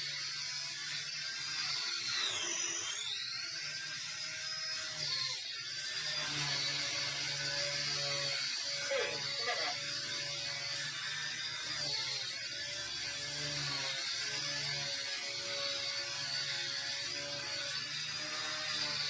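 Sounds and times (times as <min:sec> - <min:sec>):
rc helicopter motor whine: 0:00.0 - 0:19.0.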